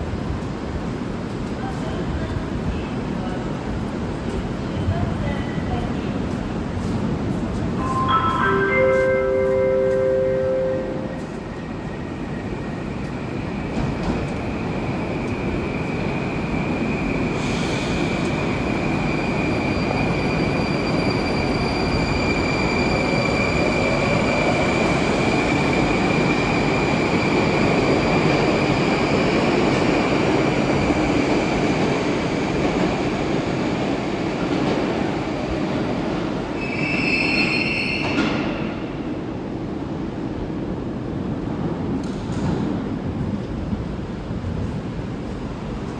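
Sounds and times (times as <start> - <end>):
metro train rumbling: 0.0 - 45.9
high wheel squeal: 36.6 - 38.5.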